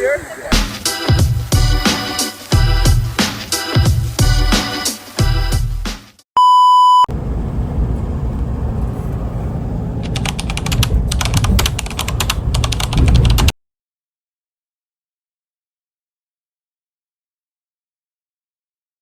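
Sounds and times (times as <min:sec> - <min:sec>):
reggae song: 0:00.0 - 0:06.1
electronic beep: 0:06.4 - 0:07.1
low rumbling noise: 0:07.1 - 0:13.5
rapid ticking: 0:10.0 - 0:13.5.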